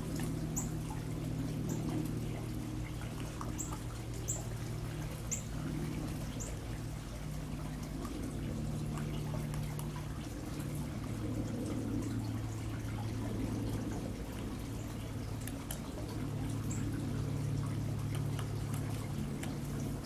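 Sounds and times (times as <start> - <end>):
low rushing hum: 0.0 - 20.0.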